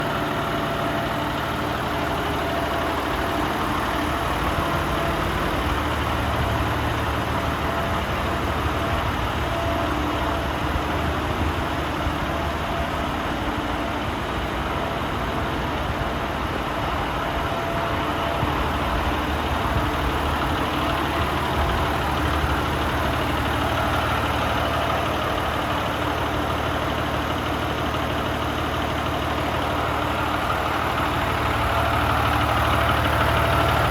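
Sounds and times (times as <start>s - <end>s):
diesel truck engine idling: 0.0s - 33.9s.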